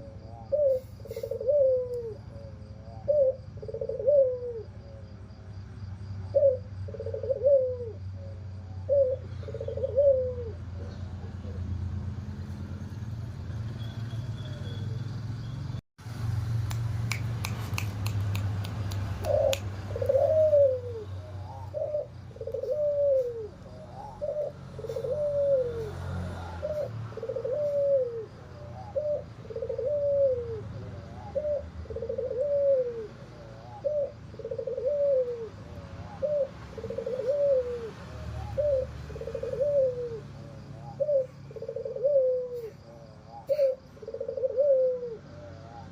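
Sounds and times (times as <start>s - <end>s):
dove cooing: 0.0s - 5.2s, 6.2s - 12.0s, 19.2s - 45.9s
short clicks: 16.6s - 19.7s.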